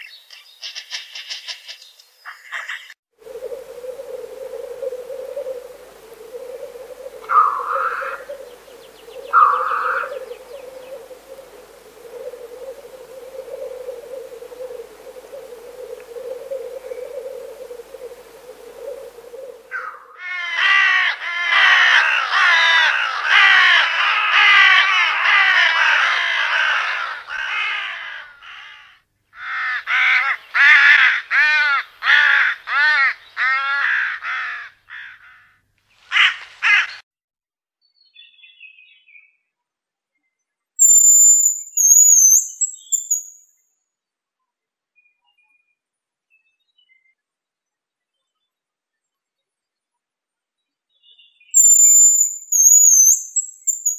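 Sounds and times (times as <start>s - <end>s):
harsh bird calls: 0.0s - 35.5s, 40.8s - 43.3s, 51.6s - 53.9s
low drone: 3.2s - 19.7s.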